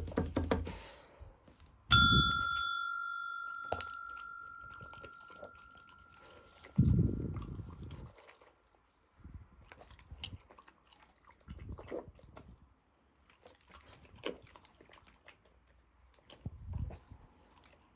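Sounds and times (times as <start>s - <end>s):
metallic ring: 1.9s - 6.6s.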